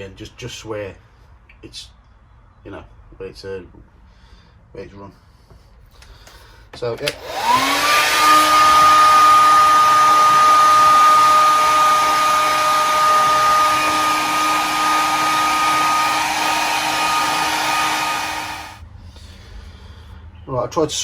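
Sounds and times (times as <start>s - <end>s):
hair dryer blowing: 7.0s - 18.8s.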